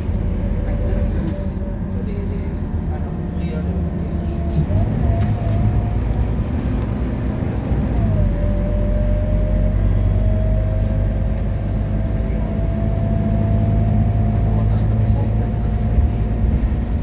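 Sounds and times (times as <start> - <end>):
bus engine running under load: 0.0 - 17.0.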